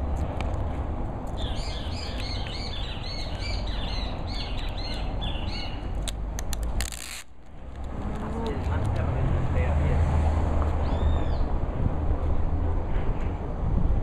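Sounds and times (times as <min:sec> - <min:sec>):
low outdoor rumble: 0:00.0 - 0:14.0
songbird chirping: 0:01.3 - 0:05.9.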